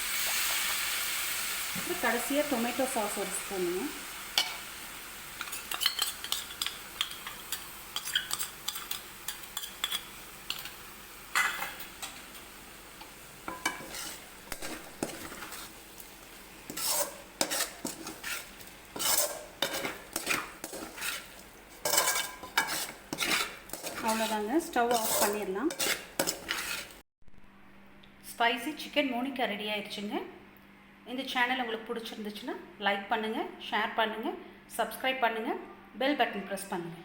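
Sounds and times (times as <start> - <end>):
faint sizzle: 0.0 - 27.0
metal spoon scraping pan: 5.4 - 10.8, 13.5 - 27.0.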